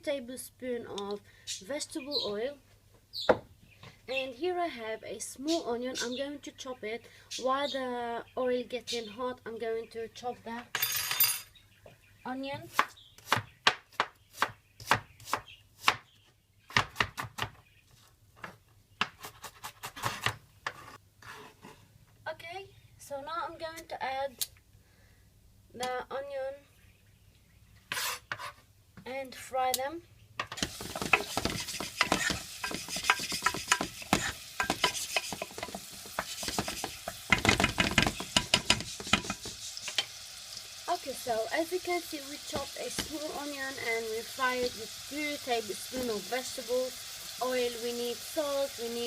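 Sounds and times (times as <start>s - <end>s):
knife chopping onion: 12.7s - 16.0s, 16.7s - 17.6s, 30.6s - 39.9s
utensil scraping a pot: 27.9s - 28.6s, 30.6s - 40.2s
onion sizzling in oil: 30.6s - 49.0s.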